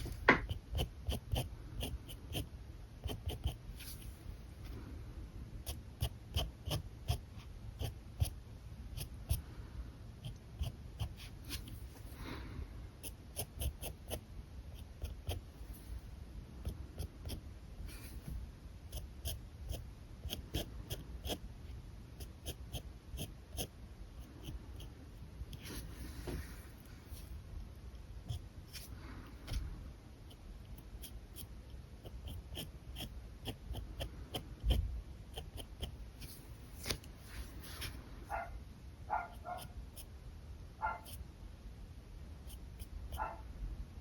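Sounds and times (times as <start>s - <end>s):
marker drawing on paper: 0.0s - 4.2s, 10.2s - 11.9s, 25.5s - 27.3s.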